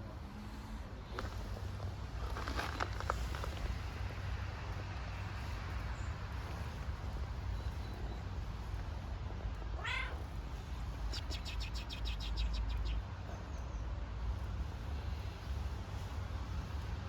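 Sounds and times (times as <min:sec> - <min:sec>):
steady low rumble: 0:00.0 - 0:17.0
kitten meowing: 0:09.8 - 0:10.3.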